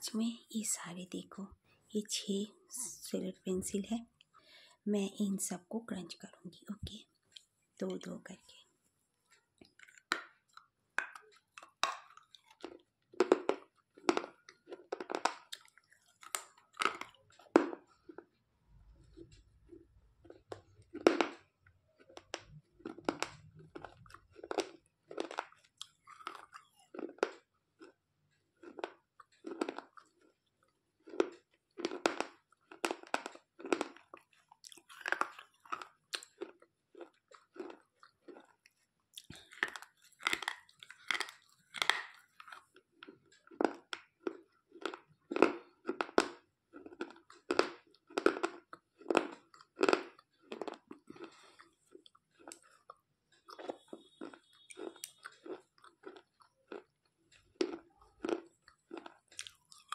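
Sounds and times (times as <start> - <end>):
crunching of bitten pencils: 9.6 - 18.4, 19.0 - 59.9.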